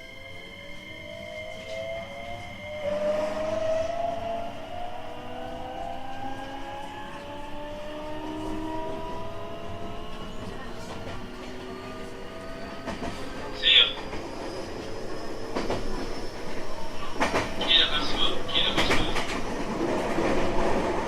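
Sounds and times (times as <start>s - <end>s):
train inverter and motors whining: 0.0s - 21.0s
train running rumble: 2.9s - 21.0s.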